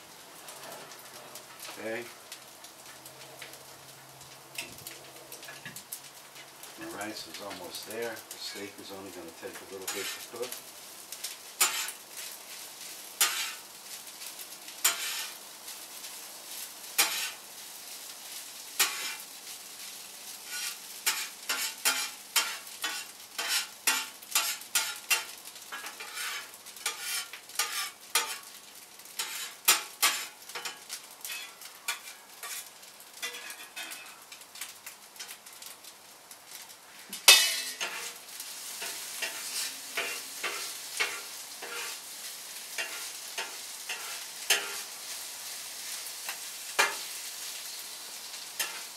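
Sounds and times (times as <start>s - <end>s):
rice sizzling in pan: 0.0s - 48.9s
spatula scraping pan: 9.4s - 10.5s, 11.6s - 12.0s, 13.2s - 13.6s, 14.8s - 15.4s, 16.9s - 17.4s, 18.8s - 19.2s, 20.4s - 28.5s, 29.2s - 34.2s, 37.1s - 42.1s, 42.7s - 45.0s, 46.0s - 47.8s, 48.6s - 48.9s.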